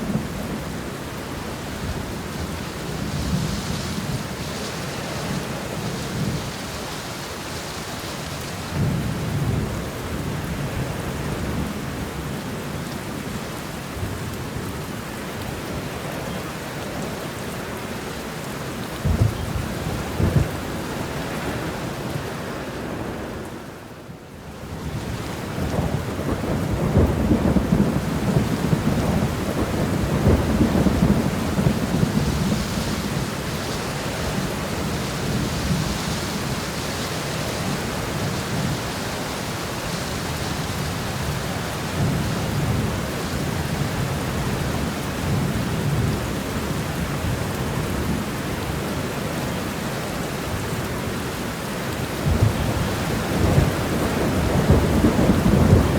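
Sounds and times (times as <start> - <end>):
steady rain: 0.0 - 55.9
thunder rumbling: 19.0 - 21.8, 24.9 - 48.8, 52.2 - 55.9.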